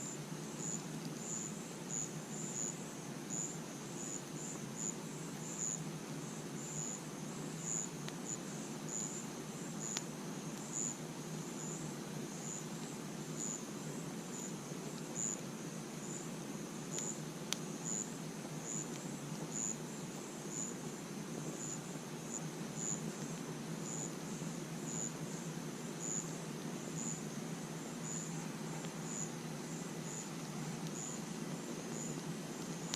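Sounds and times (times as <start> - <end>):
campfire rushing: 0.0 - 32.9
crickets chirping: 0.0 - 32.9
fire popping: 16.8 - 20.3, 27.7 - 32.9.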